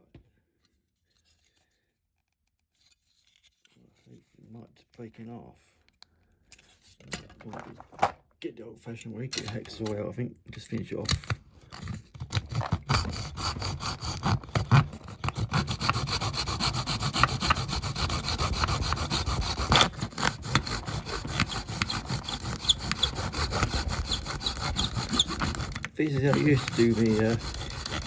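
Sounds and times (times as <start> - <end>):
hacksaw cutting plastic: 11.8 - 28.0.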